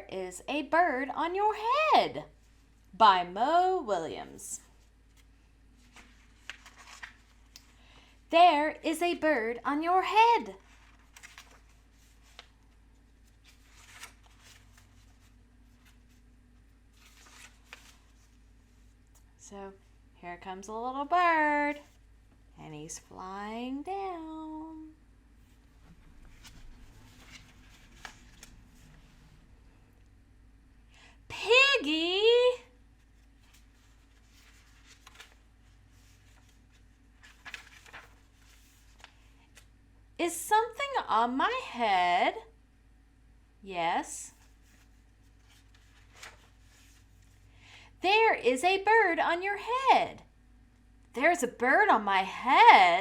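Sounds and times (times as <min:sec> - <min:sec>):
paper pages rustling: 0:04.7 - 0:07.9, 0:10.5 - 0:19.3, 0:25.4 - 0:29.4, 0:33.0 - 0:39.7, 0:44.3 - 0:47.4.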